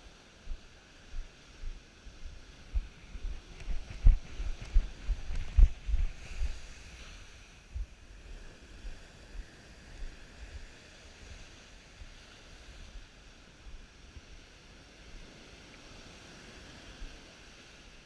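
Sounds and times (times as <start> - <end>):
ocean surf on a beach: 0.0 - 18.0
wind buffeting microphone: 0.4 - 10.8.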